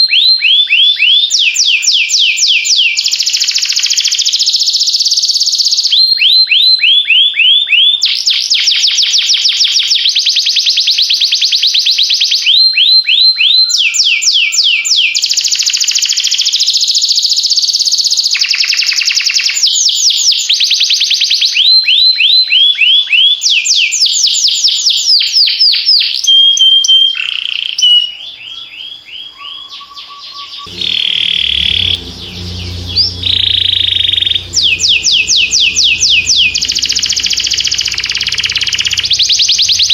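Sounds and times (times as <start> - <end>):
low background sound: 30.7 - 39.9.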